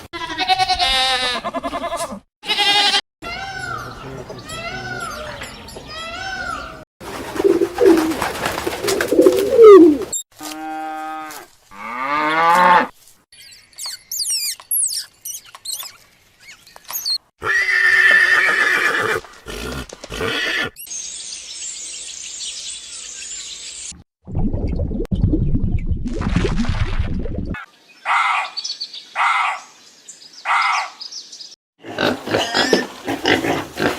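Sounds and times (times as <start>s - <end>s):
goat bleats: 0.1s - 3.0s
small birds chirping: 13.3s - 17.3s
horse whinnying: 17.4s - 20.8s.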